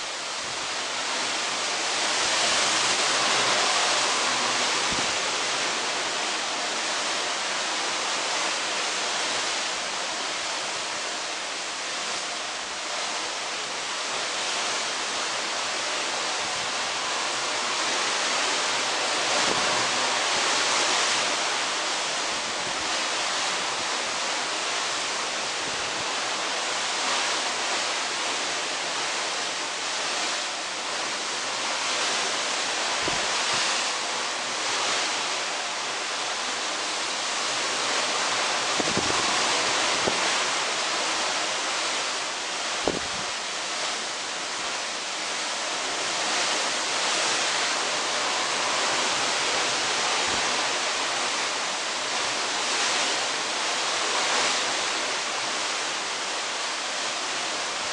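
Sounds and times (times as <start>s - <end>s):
sea water rushing along hull: 0.0s - 57.9s
wind: 0.0s - 57.9s.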